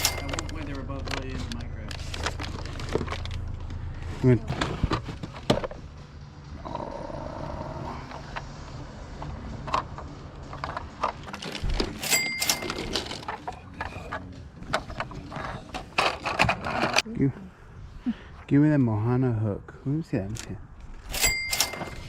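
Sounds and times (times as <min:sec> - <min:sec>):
objects clicking and knocking: 0:00.0 - 0:03.5, 0:09.1 - 0:17.0
steady background noise: 0:00.0 - 0:22.0.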